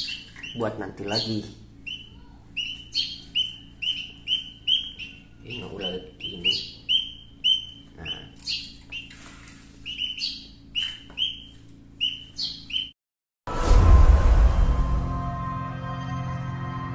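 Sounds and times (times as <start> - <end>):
small birds chirping: 0.0 - 13.0
loud music: 13.5 - 16.9.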